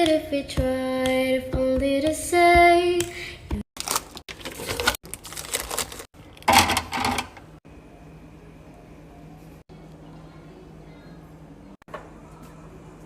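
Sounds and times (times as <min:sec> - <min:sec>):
items clattering and rustling: 0:03.8 - 0:07.5.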